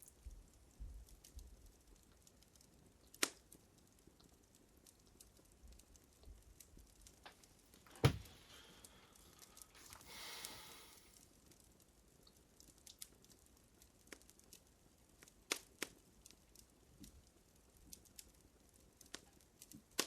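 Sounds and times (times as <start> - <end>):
fire crackling: 1.1 - 20.0
short rustling: 7.8 - 8.8.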